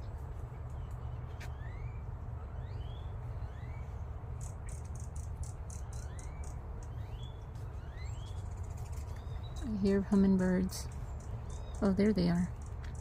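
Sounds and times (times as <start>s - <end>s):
birds whistling rising notes: 0.8s - 10.1s
high rapid bird chips: 4.3s - 13.0s.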